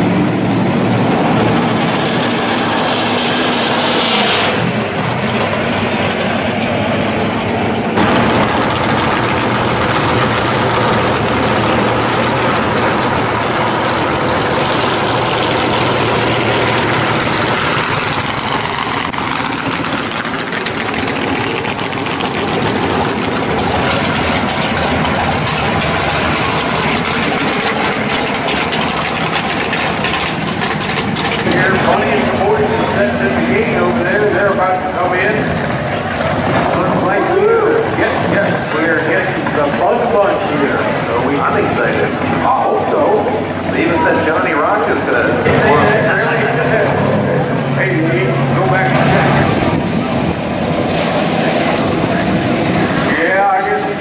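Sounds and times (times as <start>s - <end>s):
loud car engines idling: 0.0s - 54.0s.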